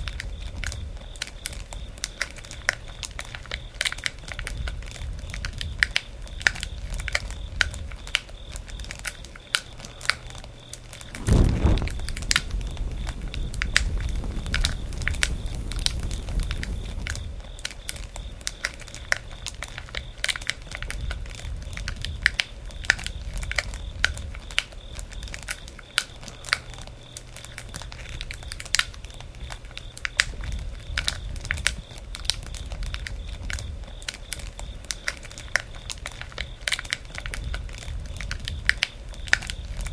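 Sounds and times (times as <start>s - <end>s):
campfire crackling and popping: 11.1s - 17.3s
low rush: 11.1s - 17.3s.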